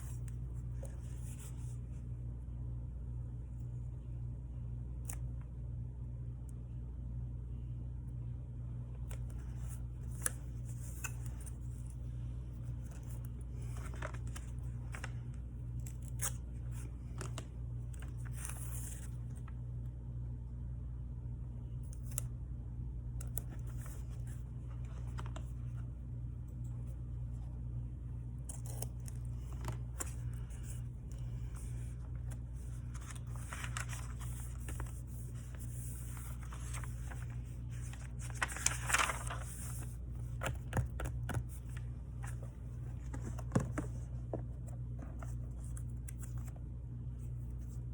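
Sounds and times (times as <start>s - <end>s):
steady low hum: 0.0s - 47.9s
paper rustling: 9.1s - 19.6s, 23.3s - 25.9s, 28.4s - 46.6s
scissors snipping: 28.4s - 29.3s.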